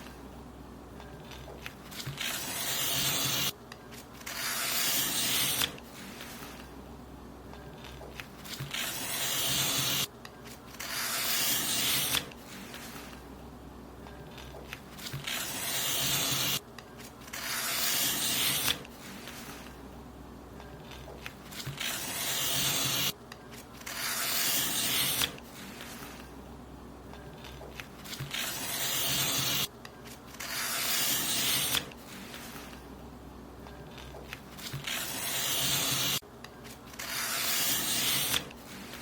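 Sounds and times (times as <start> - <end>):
paper being cut: 1.3 - 6.7, 7.8 - 10.1, 10.7 - 13.2, 14.3 - 16.6, 17.3 - 19.7, 20.9 - 26.3, 27.4 - 29.7, 30.3 - 32.8, 33.9 - 36.2, 36.9 - 39.0.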